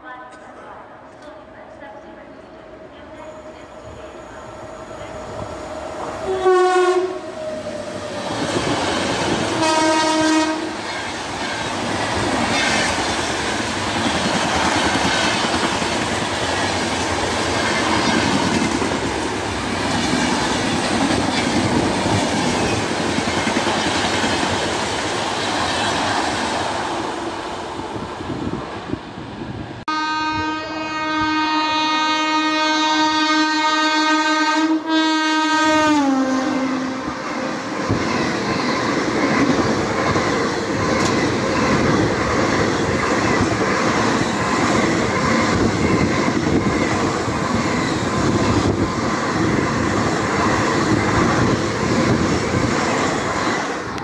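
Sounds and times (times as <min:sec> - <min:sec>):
train horn: 0:06.2 - 0:07.4, 0:09.5 - 0:10.8, 0:29.9 - 0:37.7.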